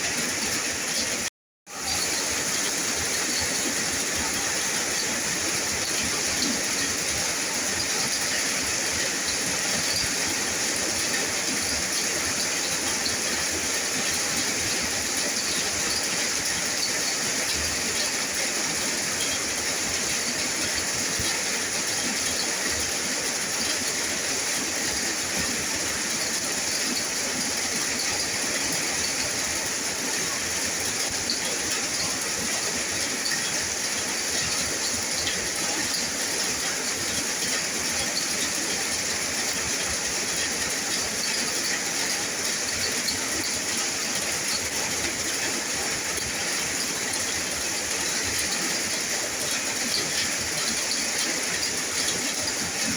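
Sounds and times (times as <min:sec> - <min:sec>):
heavy rain hissing: 0:00.0 - 0:52.9.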